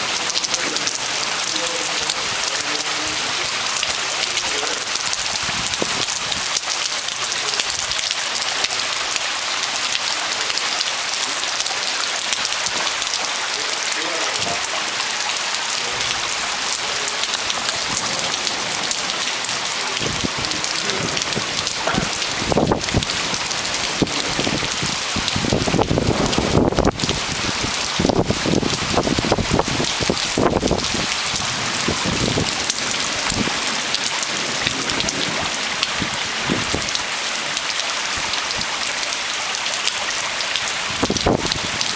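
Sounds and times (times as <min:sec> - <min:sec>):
heavy rain falling: 0:00.0 - 0:41.9
low rumbles: 0:15.8 - 0:33.6.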